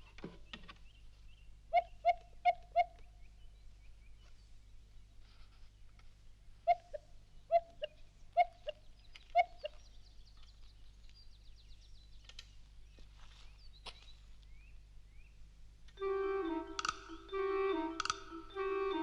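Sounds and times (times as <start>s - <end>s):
high twittering birdsong: 0.0s - 19.0s
bird two-note hoot: 16.0s - 19.0s.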